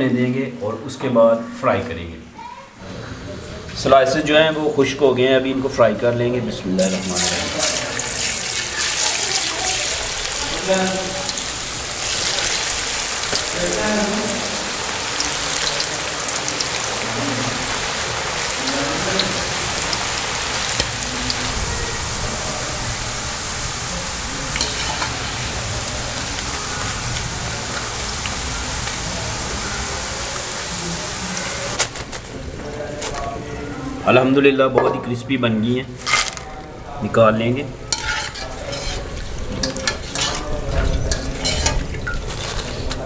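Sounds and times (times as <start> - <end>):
potatoes deep-frying sizzle: 6.8 - 32.3, 37.3 - 43.0.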